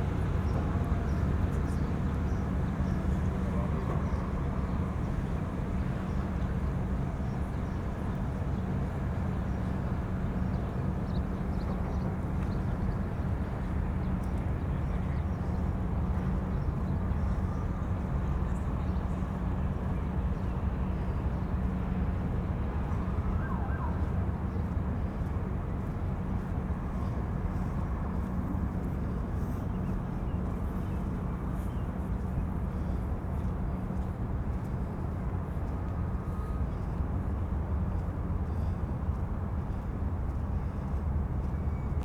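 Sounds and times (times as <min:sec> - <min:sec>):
wind: 0:00.0 - 0:42.0
distant siren wailing: 0:22.8 - 0:24.4.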